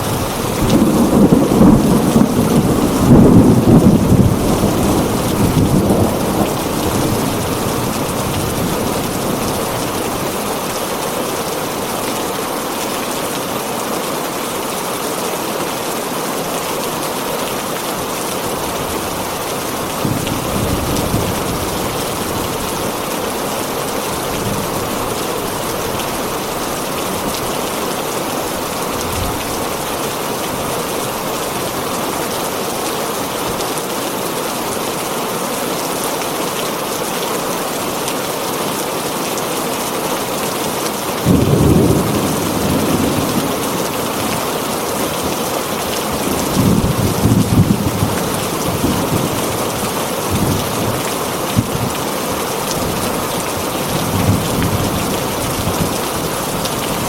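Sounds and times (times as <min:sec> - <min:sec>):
thunder rumbling: 0:00.0 - 0:10.4, 0:41.2 - 0:44.4
heavy rain on a tin roof: 0:00.0 - 0:57.0.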